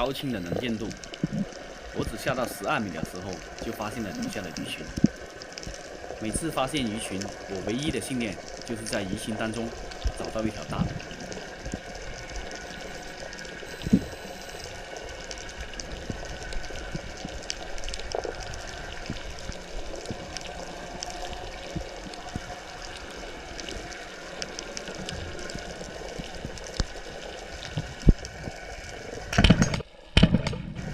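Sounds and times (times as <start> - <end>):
underwater clicks and crackles: 0.0 - 30.9
underwater hiss: 5.2 - 29.4.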